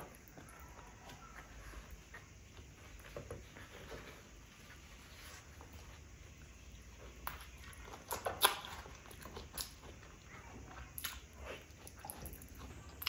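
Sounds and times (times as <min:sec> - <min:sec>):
wet chewing smacks and clicks: 0:07.2 - 0:13.0.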